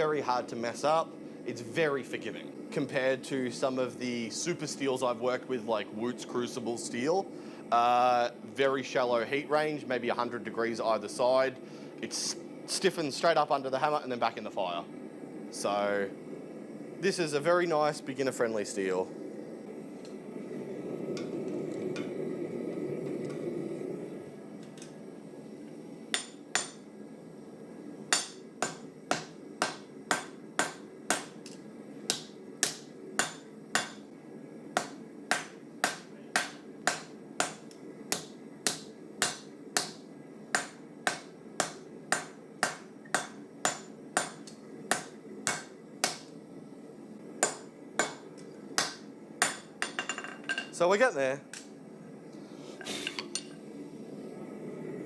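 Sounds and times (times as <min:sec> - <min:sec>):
hammer ringing on anvil: 0:26.2 - 0:26.8, 0:28.2 - 0:31.4, 0:32.1 - 0:34.0, 0:34.8 - 0:37.6, 0:38.2 - 0:40.0, 0:40.6 - 0:46.2, 0:48.8 - 0:50.3.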